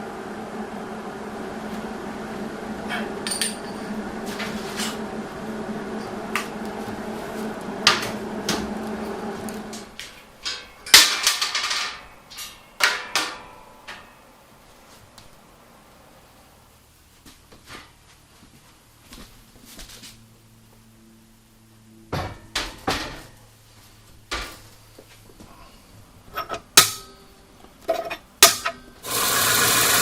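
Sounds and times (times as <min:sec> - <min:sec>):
machine hum: 0:00.0 - 0:17.1, 0:20.2 - 0:30.0
metal knocks and clatter: 0:10.4 - 0:14.2.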